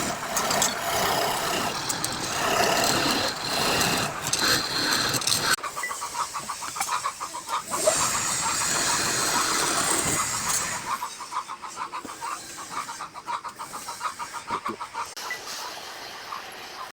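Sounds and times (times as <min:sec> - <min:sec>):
wood lathe running with pulsing: 0:00.0 - 0:05.6, 0:07.7 - 0:11.0
turning tool cutting wood hiss: 0:00.0 - 0:11.3.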